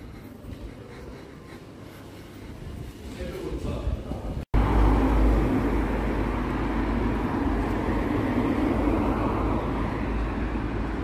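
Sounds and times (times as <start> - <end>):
moving car road noise: 4.4 - 11.0.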